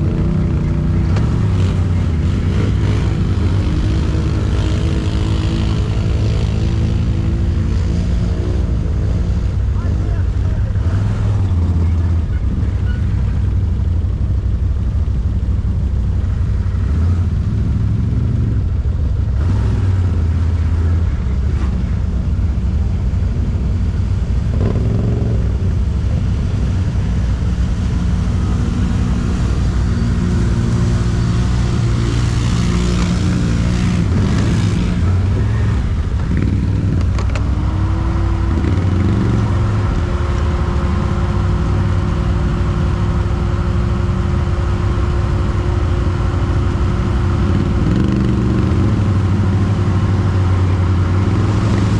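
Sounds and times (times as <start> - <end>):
quad bike engine revving: 0.0 - 13.2, 24.4 - 51.9.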